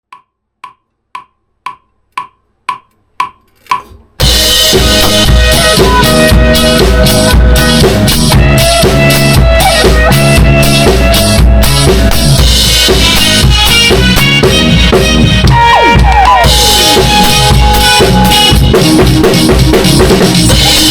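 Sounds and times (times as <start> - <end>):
drum kit playing: 1.7 - 20.9
rock song recording: 4.2 - 20.9.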